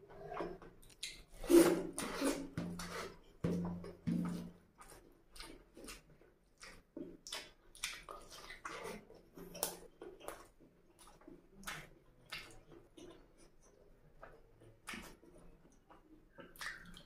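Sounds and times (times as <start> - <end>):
mouth chewing food: 0.0 - 17.0.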